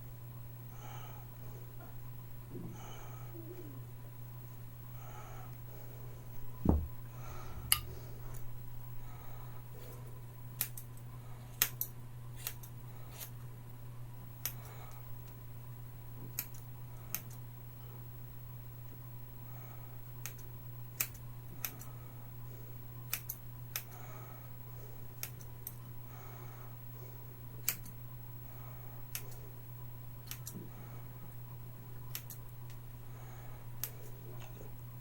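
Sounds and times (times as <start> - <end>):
steady low hum: 0.0 - 35.0
scissors snipping hair: 10.6 - 10.9, 11.6 - 13.3, 20.2 - 21.9, 23.1 - 23.9, 27.6 - 27.9, 30.3 - 30.6, 32.1 - 32.4.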